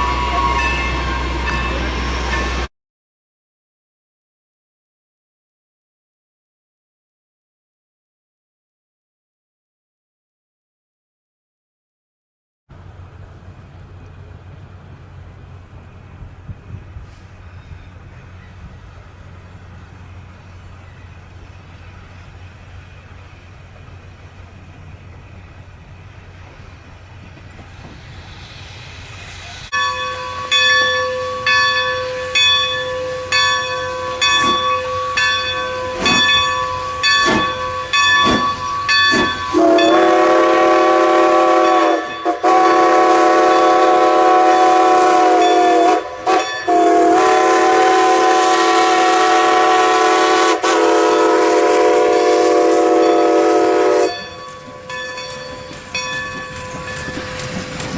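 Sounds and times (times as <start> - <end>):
approaching train hiss: 0.0 - 2.7, 12.7 - 57.9
railroad bell ringing: 0.0 - 2.7, 28.2 - 50.2, 52.8 - 57.9
train horn chime chord: 0.0 - 2.7, 29.7 - 57.4.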